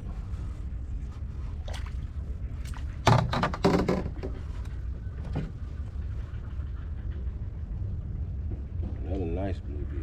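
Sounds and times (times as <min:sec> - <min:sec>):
low steady rumble: 0:00.0 - 0:10.0
sharp knocks and thuds: 0:02.7 - 0:04.5.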